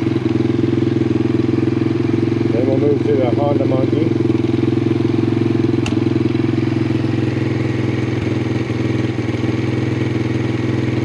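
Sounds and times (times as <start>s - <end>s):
small motorcycle engine idling: 0.0s - 11.0s
sharp click: 5.8s - 6.0s.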